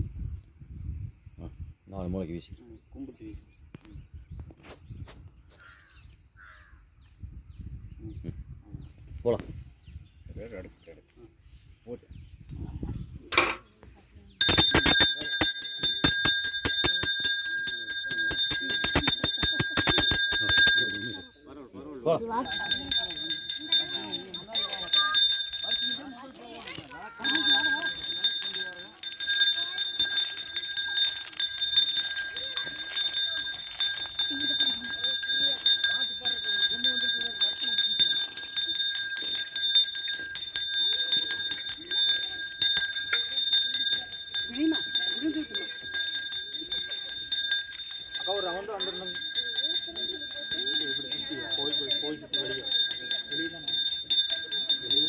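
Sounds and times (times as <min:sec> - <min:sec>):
hand bell ringing rapidly: 0:14.4 - 0:21.4, 0:22.4 - 0:55.0.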